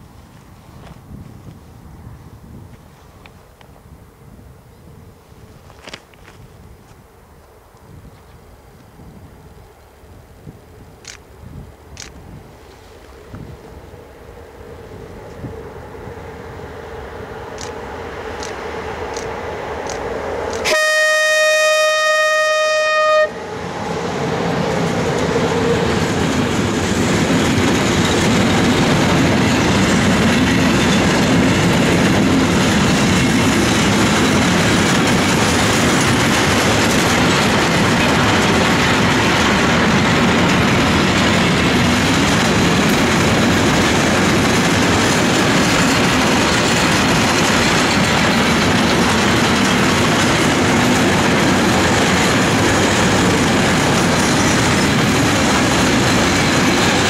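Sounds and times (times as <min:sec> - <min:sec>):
train wheels clattering on rails: 0:17.5 - 0:20.9, 0:23.9 - 0:57.0
locomotive horn: 0:20.6 - 0:23.6.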